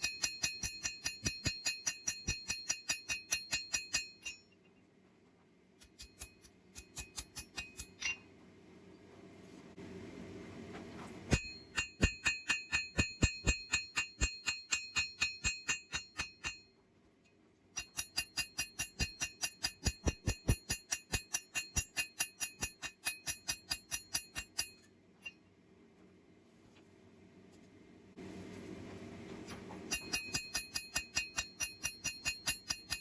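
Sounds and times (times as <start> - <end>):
hammer striking steel on anvil: 0.0 - 4.6, 5.8 - 8.3, 11.3 - 16.8, 17.8 - 25.4, 29.9 - 33.0.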